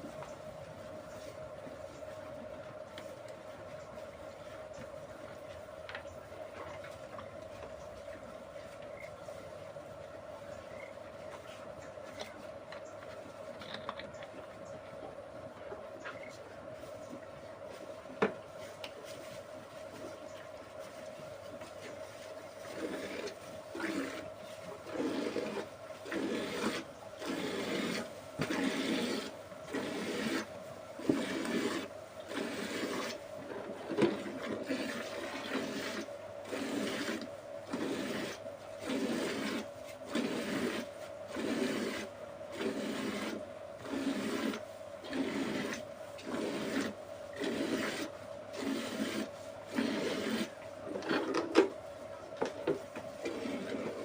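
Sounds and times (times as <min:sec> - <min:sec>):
faint steady hum: 0:00.0 - 0:54.0
milk spurting into a pail: 0:22.6 - 0:51.4.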